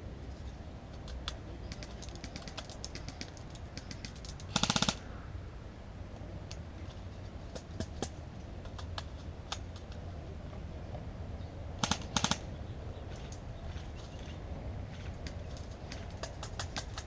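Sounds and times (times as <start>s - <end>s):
airsoft gun shots: 4.5s - 5.0s, 11.8s - 12.5s.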